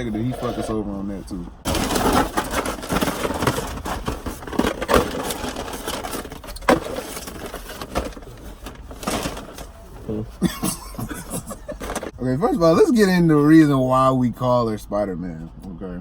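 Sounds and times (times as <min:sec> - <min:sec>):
paper bag rustling: 0:00.0 - 0:00.8, 0:01.7 - 0:12.2.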